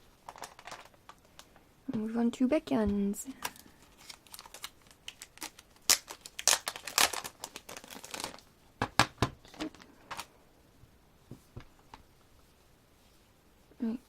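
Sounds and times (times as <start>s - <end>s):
packaging crinkling: 0.2s - 1.6s, 3.4s - 10.3s.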